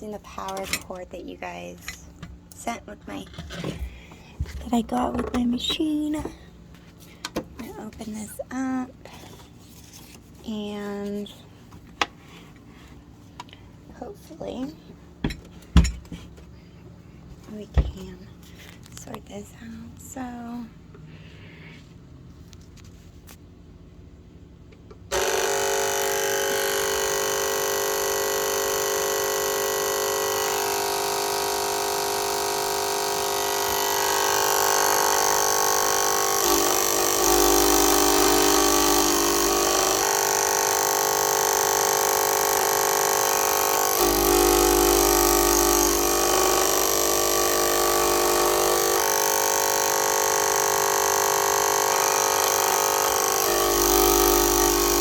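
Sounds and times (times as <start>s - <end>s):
cutting machine motor whine: 25.1s - 55.0s
machine grinding: 25.1s - 55.0s.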